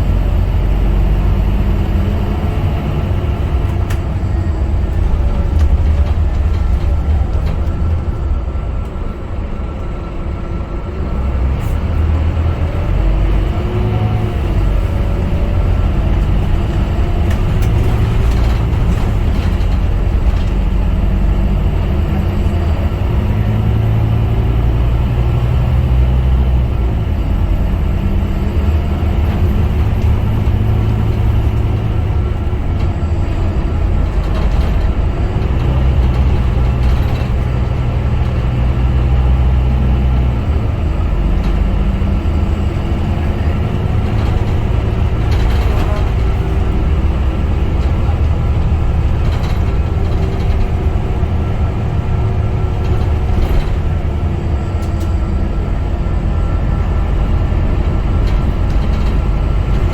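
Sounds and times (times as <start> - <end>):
bus engine running: 0.0 - 59.9
road noise: 0.0 - 59.9.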